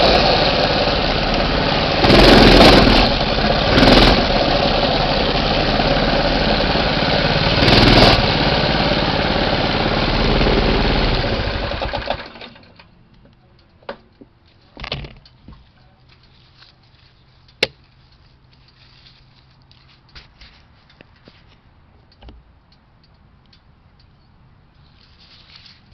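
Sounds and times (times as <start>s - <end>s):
small engine running: 0.0s - 12.6s.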